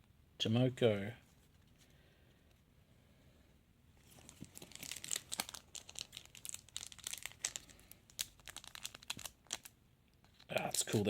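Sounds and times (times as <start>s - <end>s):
card pack wrapper crinkling: 4.0s - 11.0s.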